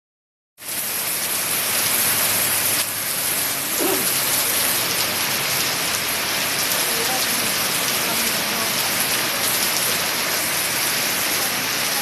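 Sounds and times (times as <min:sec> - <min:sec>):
heavy rain pouring: 0:00.6 - 0:12.0.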